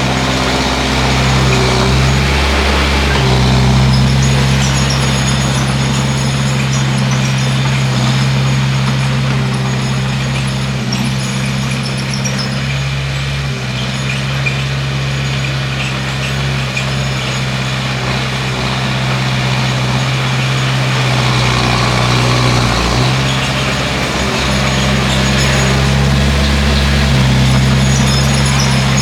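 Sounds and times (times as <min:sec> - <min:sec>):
bulldozer diesel engine running: 0:00.0 - 0:29.0.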